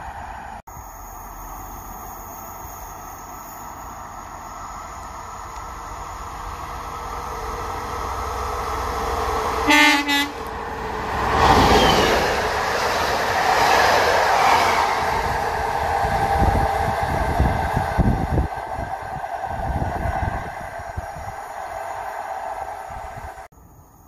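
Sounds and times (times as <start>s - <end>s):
train rushing past: 0.0s - 23.5s
train horn blast: 9.6s - 10.5s.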